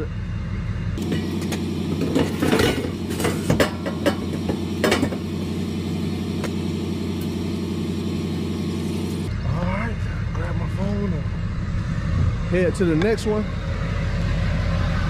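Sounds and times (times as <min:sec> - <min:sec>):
diesel truck engine running: 0:00.0 - 0:15.0
metallic clanks and rattles: 0:01.0 - 0:05.3.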